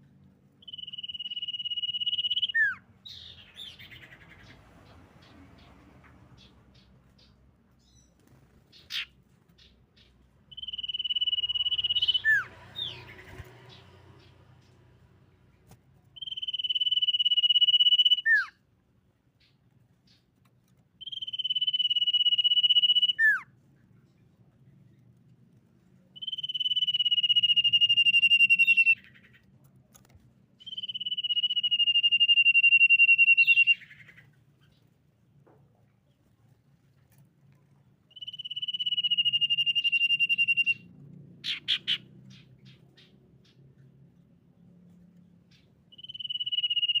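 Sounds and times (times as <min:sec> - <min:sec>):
bird down-slurred whistles: 0:00.6 - 0:03.8, 0:10.5 - 0:13.0, 0:16.2 - 0:18.5, 0:26.2 - 0:29.1, 0:30.6 - 0:34.2, 0:38.1 - 0:40.8, 0:45.9 - 0:47.0
bird rapid trill: 0:00.6 - 0:04.6, 0:06.4 - 0:14.8, 0:16.2 - 0:18.5, 0:21.0 - 0:23.4, 0:26.2 - 0:29.4, 0:30.6 - 0:34.8, 0:38.1 - 0:43.6, 0:45.5 - 0:47.0
bird chirps: 0:00.6 - 0:14.9, 0:16.1 - 0:18.6, 0:19.4 - 0:20.4, 0:21.0 - 0:25.0, 0:26.2 - 0:29.5, 0:30.6 - 0:35.1, 0:38.1 - 0:47.0.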